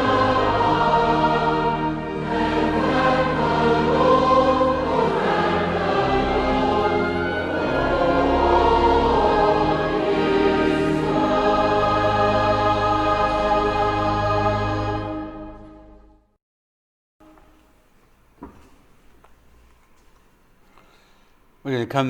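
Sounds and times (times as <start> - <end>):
choir singing a hymn: 0.0 - 16.0.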